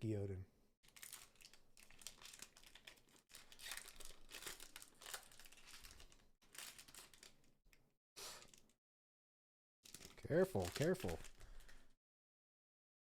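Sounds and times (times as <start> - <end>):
foil wrapper crinkling: 0.8 - 7.5, 8.4 - 8.8, 9.9 - 11.9.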